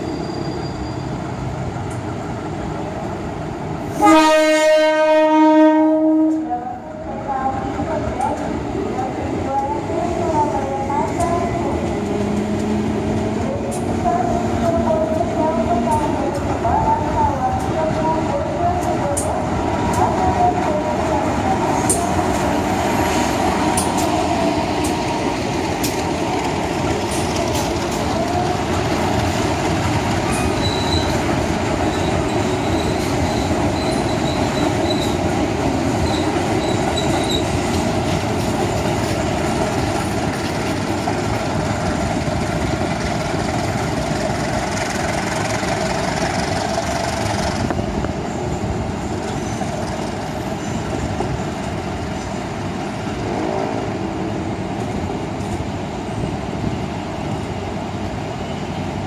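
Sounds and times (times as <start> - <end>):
train wheels squealing: 0.0 - 1.4, 30.2 - 35.2, 36.0 - 37.8, 48.2 - 52.5, 58.4 - 58.9
train wheels rumbling on rail: 0.0 - 59.0.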